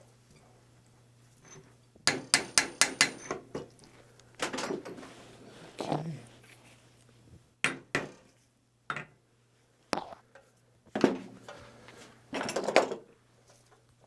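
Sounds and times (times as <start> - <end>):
metal tools knocking and clinking: 2.1 - 3.7.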